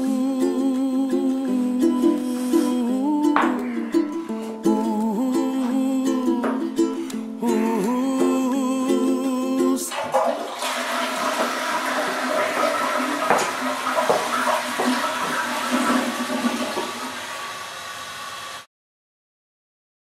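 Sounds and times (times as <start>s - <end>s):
ukulele music: 0.0s - 10.6s
toilet flushing: 9.9s - 18.7s.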